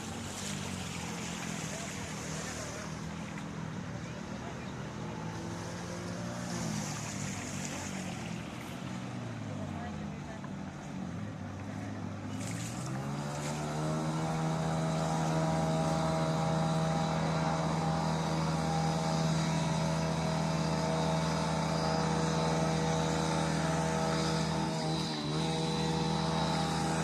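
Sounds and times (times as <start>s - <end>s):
engine running: 0.0s - 27.0s.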